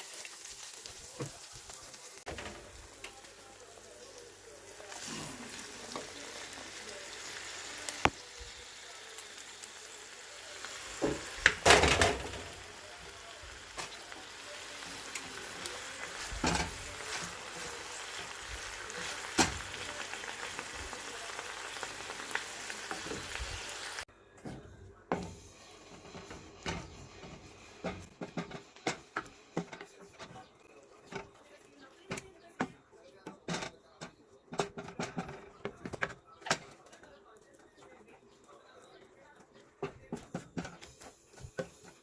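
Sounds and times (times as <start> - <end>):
stir-fry sizzling in a pan: 0.0 - 24.1, 25.1 - 31.3, 40.2 - 42.0
utensil knocking and scraping pan: 24.4 - 31.4.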